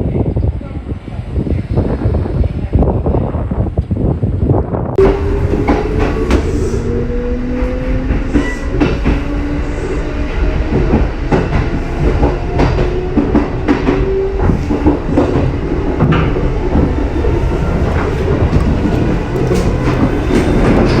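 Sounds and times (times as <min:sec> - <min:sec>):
low rumble of train: 0:00.0 - 0:21.0
train wheels clacking over rail joints: 0:10.7 - 0:21.0.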